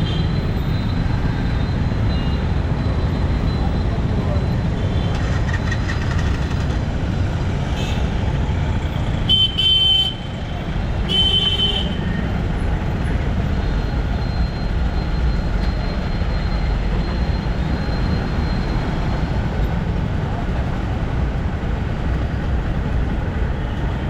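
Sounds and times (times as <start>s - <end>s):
motorbike engine and road rumble: 0.0s - 24.0s
vehicle horn honking: 9.3s - 10.3s, 11.1s - 12.1s.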